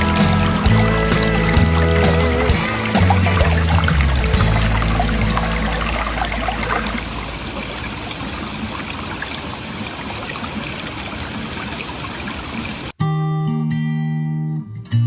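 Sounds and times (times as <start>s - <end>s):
guitar music: 0.0s - 7.0s, 13.0s - 15.0s
mountain stream flowing: 0.0s - 12.9s.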